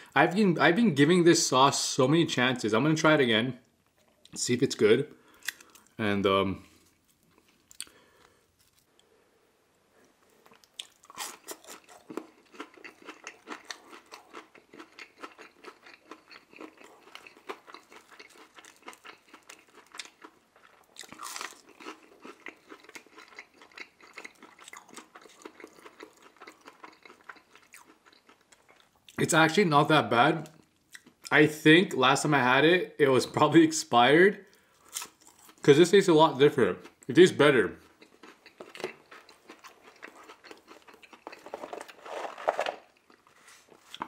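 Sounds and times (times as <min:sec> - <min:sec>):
crisp crunching of chewing: 0:05.4 - 0:06.0, 0:06.7 - 0:09.1, 0:10.1 - 0:29.2, 0:37.9 - 0:44.0.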